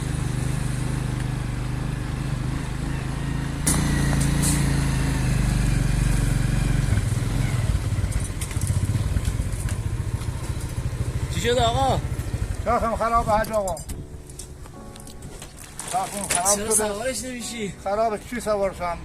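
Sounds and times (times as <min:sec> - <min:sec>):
engine running: 0:00.0 - 0:14.8.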